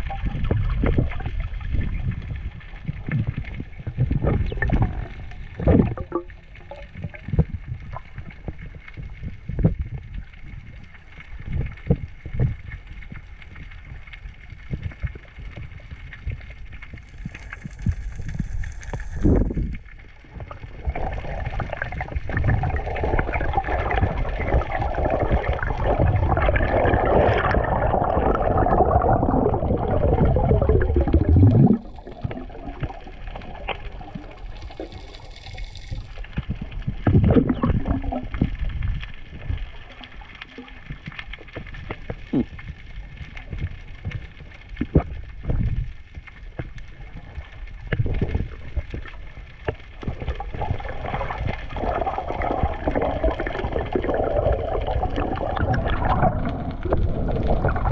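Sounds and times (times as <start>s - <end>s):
water gurgling and sloshing: 0.0s - 57.9s.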